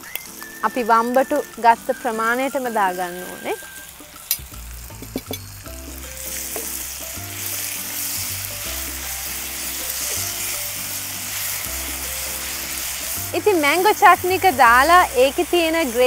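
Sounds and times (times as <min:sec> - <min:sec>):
eggplant sizzling in hot oil: 0:00.0 - 0:16.0
utensil taps: 0:06.5 - 0:06.8.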